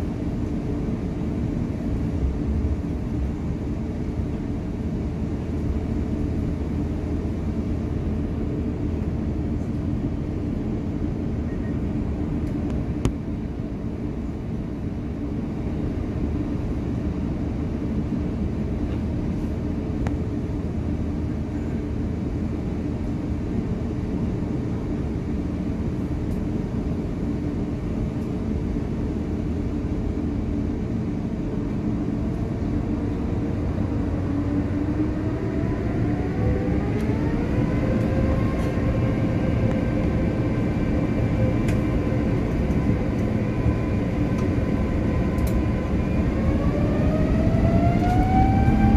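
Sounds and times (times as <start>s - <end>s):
airplane cabin rumble: 0.0s - 48.9s
jet engines spooling up: 31.2s - 48.9s
click: 41.6s - 41.8s, 45.4s - 45.6s.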